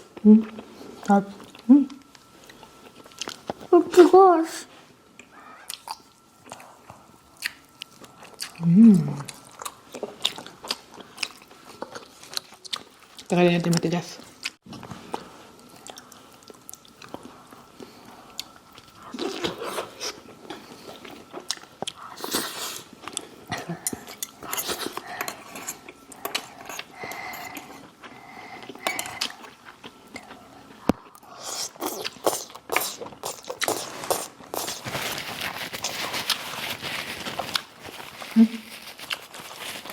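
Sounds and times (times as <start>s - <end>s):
chewing and crunching food: 0.4s - 3.7s, 5.2s - 39.9s
utensils clinking against plates: 23.6s - 27.9s, 28.8s - 29.6s.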